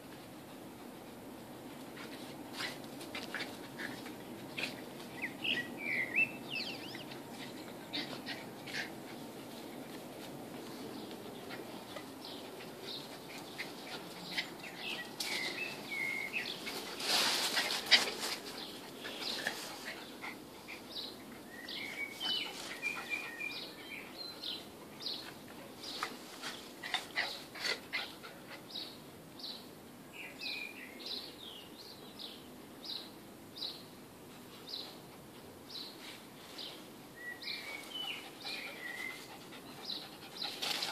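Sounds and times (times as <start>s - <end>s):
songbirds chirping: 0.0s - 40.9s
rustling and scuffling: 1.6s - 5.7s, 6.8s - 20.3s, 21.7s - 23.3s, 25.1s - 27.6s, 40.4s - 40.9s.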